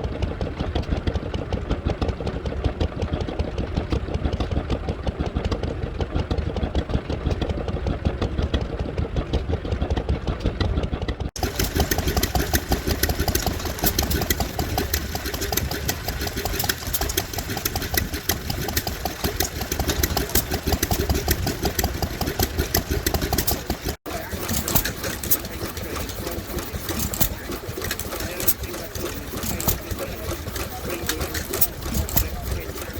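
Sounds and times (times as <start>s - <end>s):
stationary engines running: 0.0s - 32.9s.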